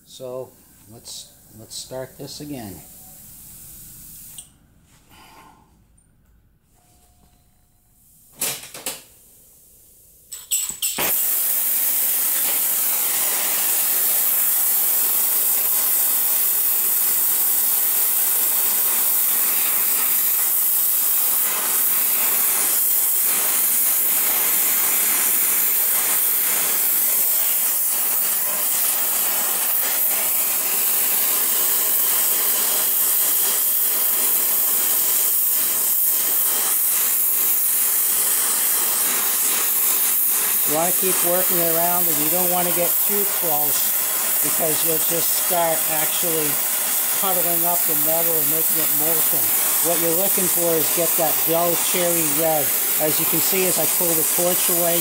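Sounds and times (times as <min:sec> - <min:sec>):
hiss of torch flame: 0:00.1 - 0:04.4, 0:10.6 - 0:55.0
torch lighting pops: 0:10.4 - 0:16.4, 0:35.3 - 0:55.0.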